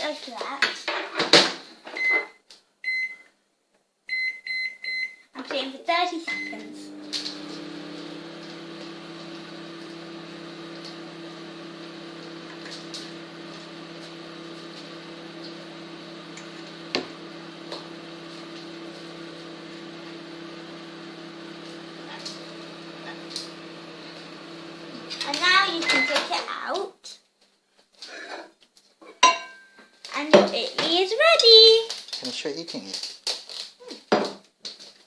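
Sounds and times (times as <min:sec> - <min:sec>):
microwave oven humming: 0:06.3 - 0:26.2.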